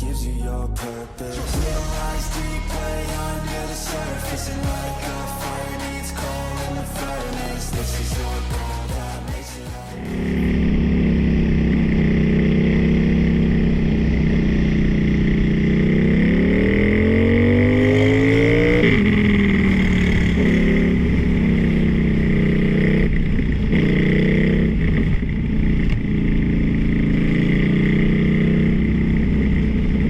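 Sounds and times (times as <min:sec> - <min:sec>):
motorcycle engine revving: 0:01.4 - 0:30.0.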